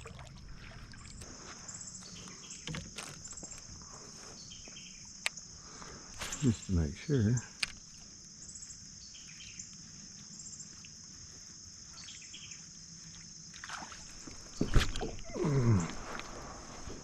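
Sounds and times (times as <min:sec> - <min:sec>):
crickets chirring: 0:00.0 - 0:17.0
man grunting: 0:15.3 - 0:16.0.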